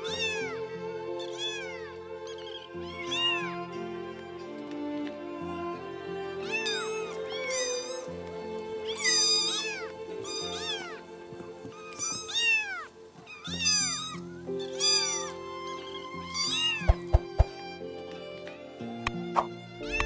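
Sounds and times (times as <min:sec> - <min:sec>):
cat meowing: 0:00.0 - 0:00.6, 0:01.2 - 0:03.5, 0:11.9 - 0:15.8, 0:16.4 - 0:17.5
background music: 0:00.0 - 0:20.0.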